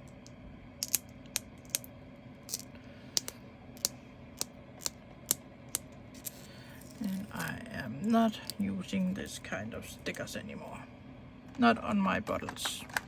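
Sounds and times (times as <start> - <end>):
plastic containers clicking: 12.4 - 13.0.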